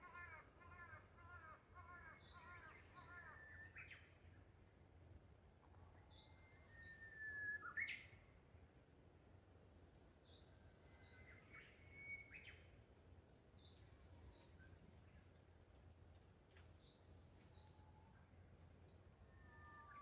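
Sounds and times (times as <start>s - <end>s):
bird chirps and whistles: 6.7s - 8.1s.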